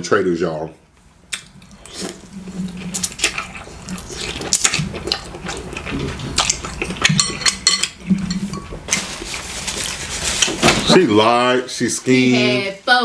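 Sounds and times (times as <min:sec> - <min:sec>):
chewing: 0:01.3 - 0:09.1.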